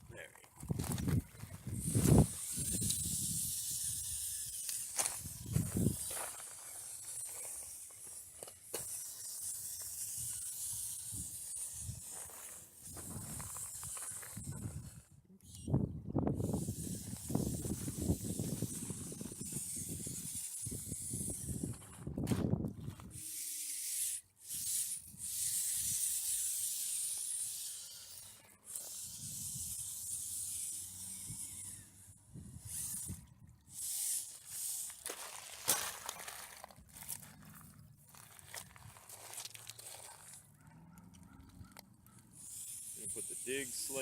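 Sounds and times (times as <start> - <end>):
wind buffeting microphone: 0.6 - 4.3, 5.2 - 6.1, 15.6 - 23.2.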